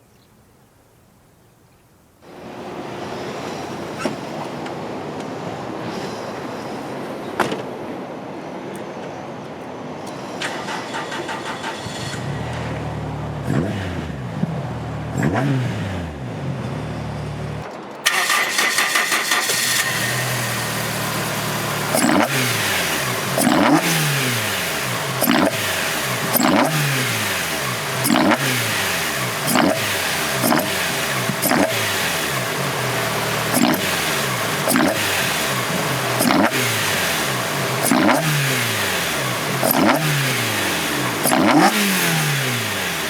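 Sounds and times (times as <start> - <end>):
four-cylinder engine revving: 10.4 - 43.0.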